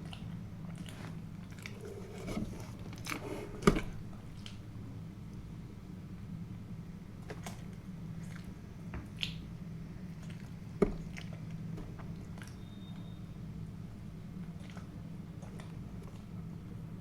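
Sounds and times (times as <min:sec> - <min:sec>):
chewing soft food: 0:00.0 - 0:02.2, 0:07.2 - 0:13.2, 0:14.4 - 0:16.5.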